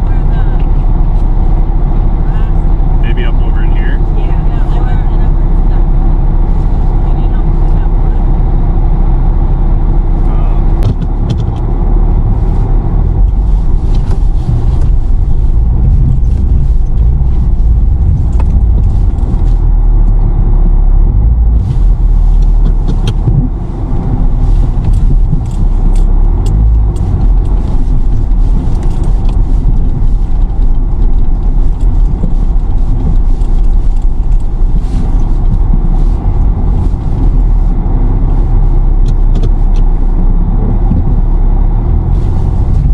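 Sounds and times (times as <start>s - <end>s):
car engine running hard: 0.0s - 42.9s
sharp clicks and ticks: 24.8s - 34.5s.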